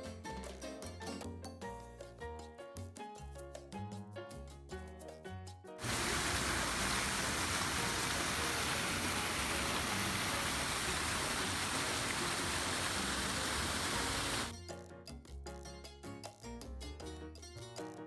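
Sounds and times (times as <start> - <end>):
steady rushing noise: 5.8 - 14.5.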